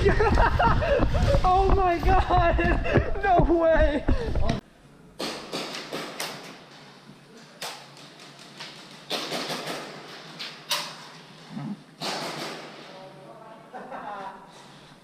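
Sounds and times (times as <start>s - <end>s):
airsoft guns firing: 9.1s - 10.0s, 12.0s - 12.8s.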